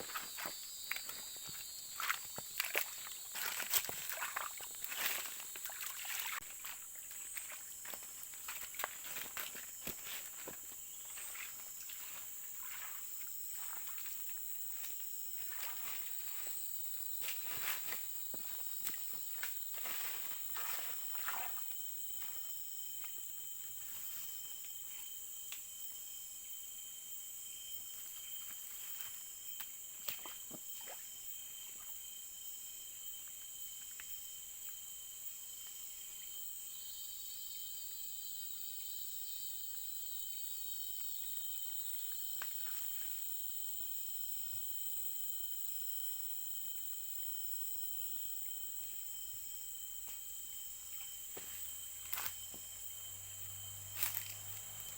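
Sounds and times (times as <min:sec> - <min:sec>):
footsteps or rustles: 0:00.0 - 0:13.0, 0:17.2 - 0:21.6, 0:51.3 - 0:52.6, 0:53.9 - 0:54.9
high-pitched insect drone: 0:00.0 - 0:54.9.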